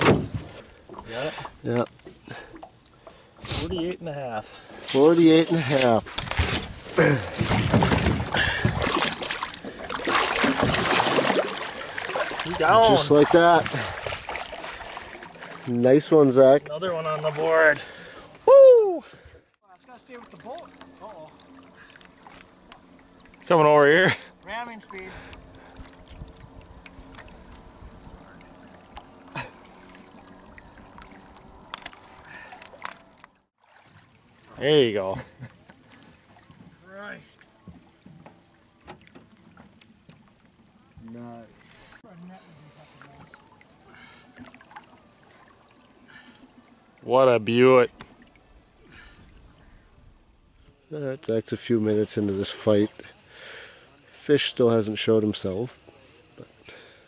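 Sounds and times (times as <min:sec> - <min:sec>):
water splashing and sloshing: 0:00.0 - 0:57.0
boat motor humming: 0:06.1 - 0:50.9.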